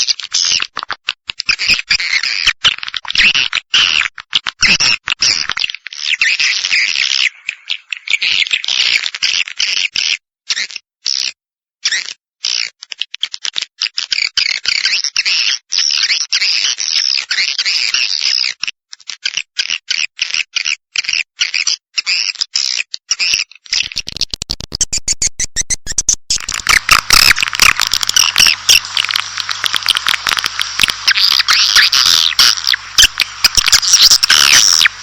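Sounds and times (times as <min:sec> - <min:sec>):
fast clicking: 0:23.8 - 0:35.0
swiftlet twittering: 0:23.8 - 0:35.0
low steady hum: 0:26.3 - 0:35.0.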